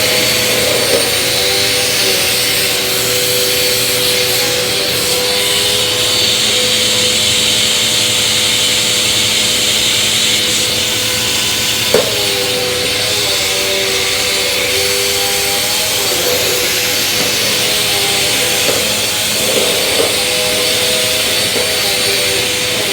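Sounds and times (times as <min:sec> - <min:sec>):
vacuum cleaner running: 0:00.0 - 0:22.9.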